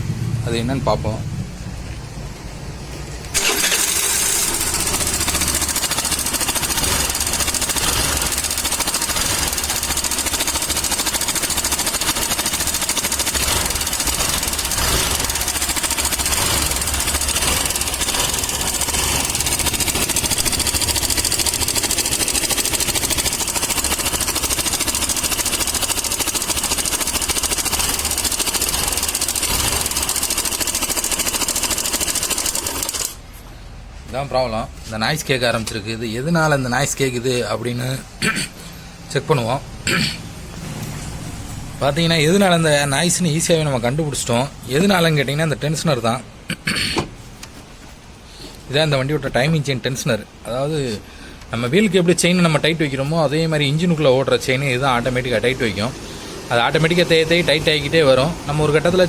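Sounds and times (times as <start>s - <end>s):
scooter engine running with clatter: 3.3s - 33.2s.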